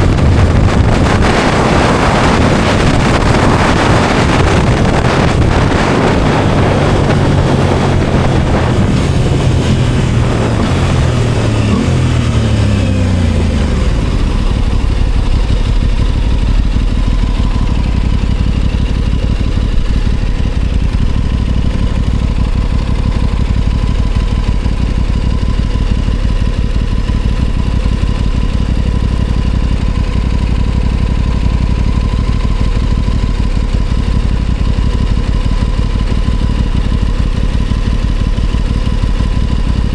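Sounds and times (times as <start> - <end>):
wind noise: 0.0 - 28.2
motorcycle engine slowing then idling: 0.0 - 39.9.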